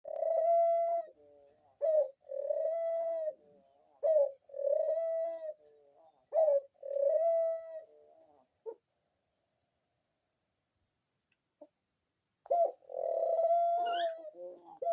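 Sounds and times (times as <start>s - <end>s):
dove cooing: 0.1s - 8.8s, 12.4s - 14.9s.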